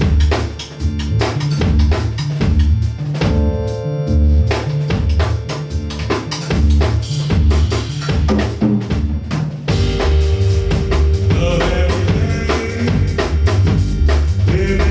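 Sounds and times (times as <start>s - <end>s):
drum kit beat: 0.0s - 14.9s
live band instrumental groove: 4.4s - 14.9s.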